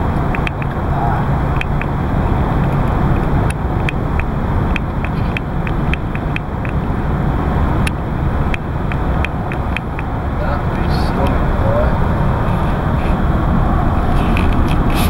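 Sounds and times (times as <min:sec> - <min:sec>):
car interior road rumble: 0:00.0 - 0:15.0
sharp ticks: 0:00.1 - 0:00.8, 0:01.5 - 0:11.4.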